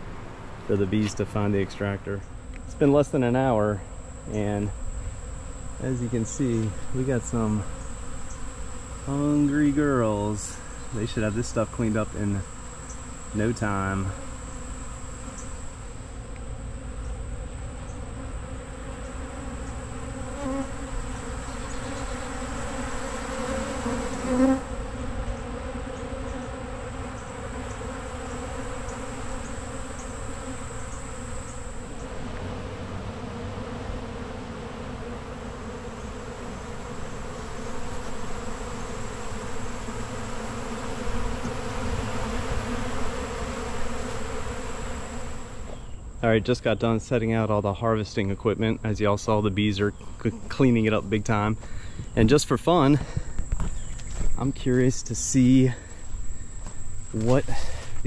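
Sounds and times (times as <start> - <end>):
bees buzzing: 0.0 - 58.0
bee flying past: 0.1 - 46.2.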